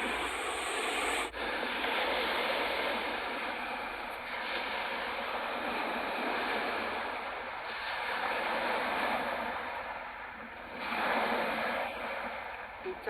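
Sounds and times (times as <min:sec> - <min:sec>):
strong wind rushing: 0:00.0 - 0:09.1
waves washing on shore: 0:00.0 - 0:13.0.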